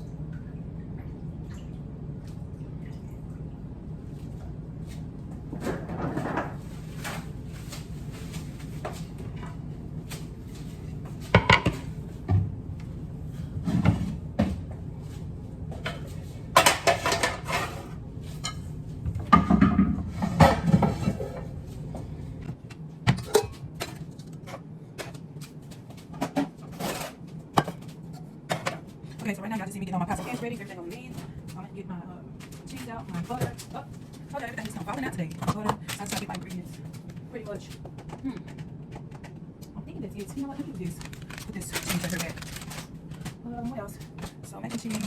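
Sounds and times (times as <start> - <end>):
steady low hum: 0.0 - 45.0
pots and pans clattering: 5.5 - 7.3, 11.3 - 12.4, 15.8 - 21.6.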